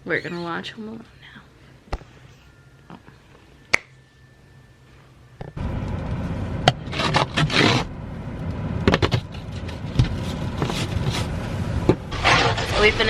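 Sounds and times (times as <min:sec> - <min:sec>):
steady low rumble: 0:05.2 - 0:13.0
ice scraping from car: 0:06.8 - 0:07.9, 0:09.0 - 0:11.4, 0:12.1 - 0:13.0.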